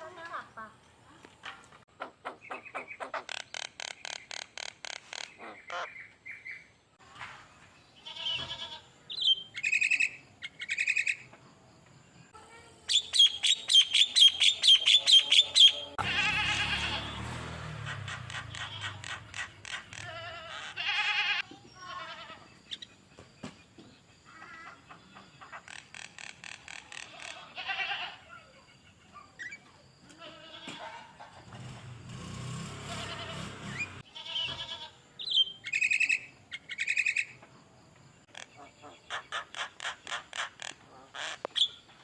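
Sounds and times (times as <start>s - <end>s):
songbird singing trills: 9.1s - 11.3s, 12.8s - 16.0s, 35.2s - 37.4s.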